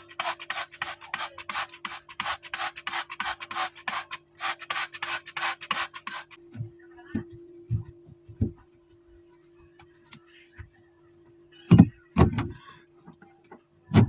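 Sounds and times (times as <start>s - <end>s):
stiff brush scrubbing: 0.0s - 6.4s.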